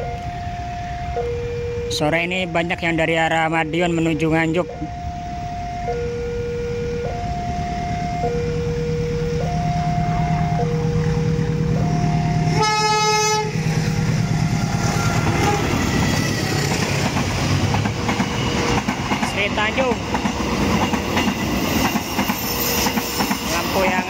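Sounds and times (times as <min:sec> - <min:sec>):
level crossing two-tone alarm: 0:00.0 - 0:13.6
diesel locomotive hum: 0:00.0 - 0:24.0
train rolling through crossing: 0:00.0 - 0:24.0
locomotive horn blast: 0:08.5 - 0:16.0.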